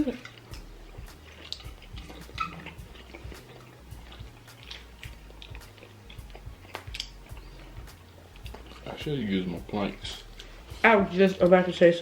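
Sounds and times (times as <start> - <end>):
people chewing and lip-smacking: 0.0 - 11.8
low steady hum: 0.0 - 12.0.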